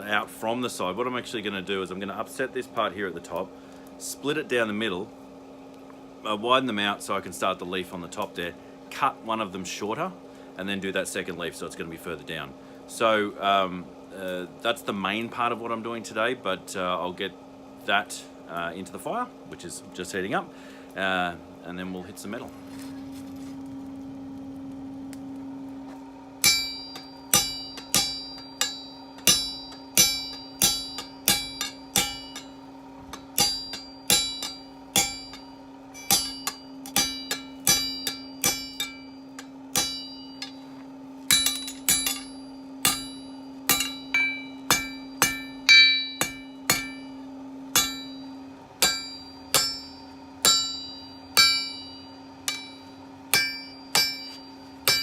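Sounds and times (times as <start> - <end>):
steady hum: 0.0 - 55.0
hammer ringing on an anvil: 26.4 - 40.7, 41.3 - 55.0.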